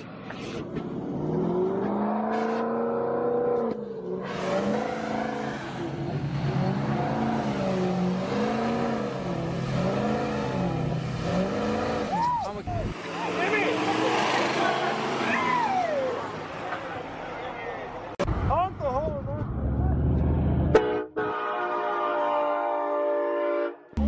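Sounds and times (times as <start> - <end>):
vehicle engine revving: 0.3 - 15.6.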